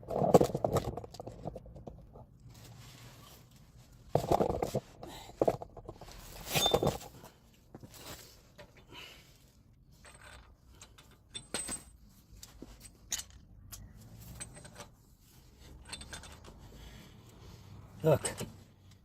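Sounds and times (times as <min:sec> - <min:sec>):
metal tools clinking: 0:06.5 - 0:07.1, 0:10.0 - 0:15.0, 0:15.6 - 0:16.7.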